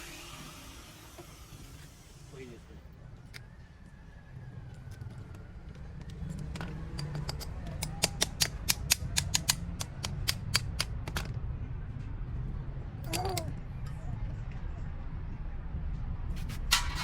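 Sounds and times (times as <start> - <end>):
sharp mechanical clicks: 6.9 - 11.1.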